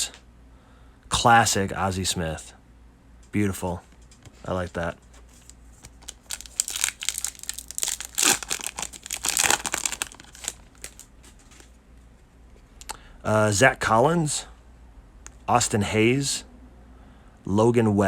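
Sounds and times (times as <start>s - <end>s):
wrapper tearing and crinkling: 5.3s - 11.8s.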